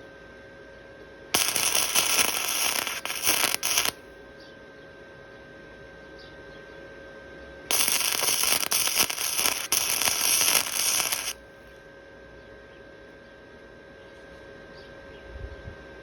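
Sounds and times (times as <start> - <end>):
faint steady hum: 0.0 - 16.0
welding arc crackling: 1.4 - 4.0, 7.7 - 11.4.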